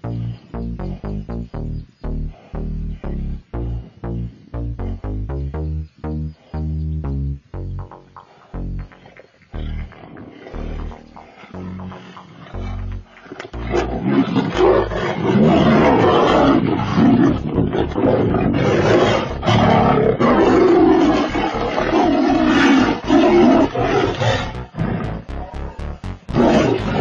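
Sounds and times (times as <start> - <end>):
deep low thumps: 0.0 - 9.0, 9.6 - 10.0, 10.6 - 14.0, 22.9 - 27.0
tigers roaring and growling: 12.6 - 25.0.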